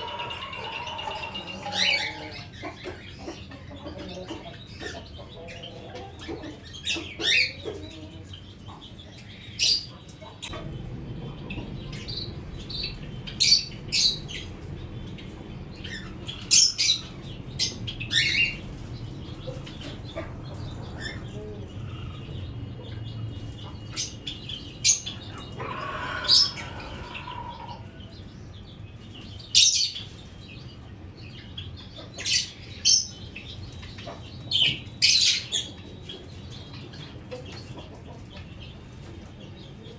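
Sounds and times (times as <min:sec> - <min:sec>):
budgerigars chirping: 0:00.0 - 0:38.9
steady low hum: 0:00.0 - 0:39.9.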